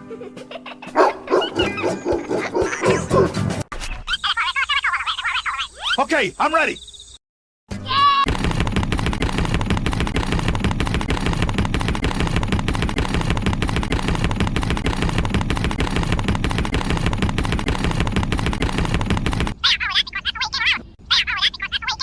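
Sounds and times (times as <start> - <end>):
rapid mechanical chugging: 8.3 - 19.6.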